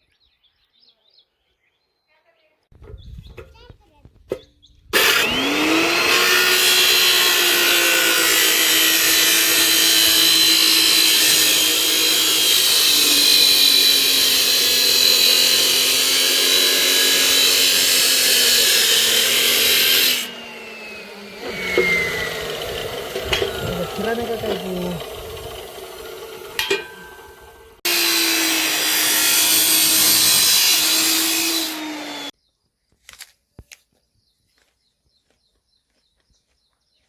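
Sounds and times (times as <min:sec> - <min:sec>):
angle grinder grinding metal: 0:05.0 - 0:32.3
grinder disc spinning down: 0:05.0 - 0:32.3.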